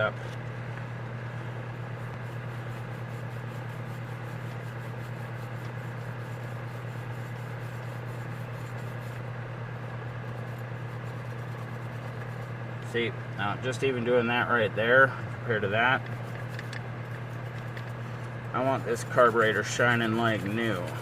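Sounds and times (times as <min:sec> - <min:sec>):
steady low hum: 0:00.0 - 0:21.0
wire brush scratching metal: 0:01.9 - 0:13.0, 0:15.5 - 0:21.0.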